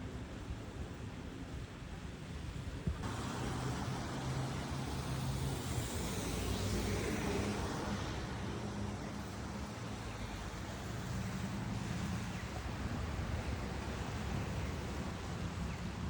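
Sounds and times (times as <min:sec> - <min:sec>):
low traffic hum: 0:02.8 - 0:16.0
car tyres hissing on wet street: 0:03.0 - 0:15.8.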